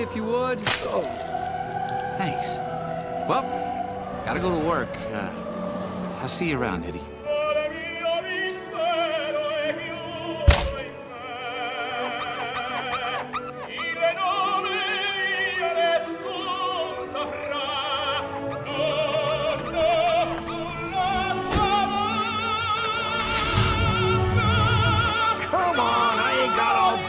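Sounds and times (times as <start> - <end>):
operatic singing: 0.0 - 27.0
orchestral accompaniment: 0.0 - 27.0
sharp thud: 10.5 - 10.9.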